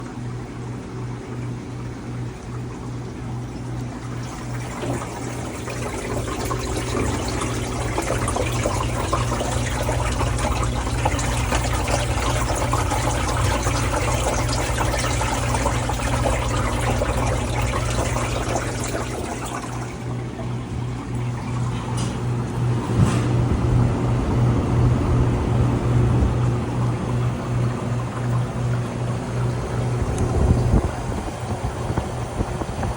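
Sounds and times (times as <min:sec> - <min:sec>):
ice machine motor hum: 0:00.0 - 0:32.9
water rushing and trickling: 0:02.2 - 0:21.8.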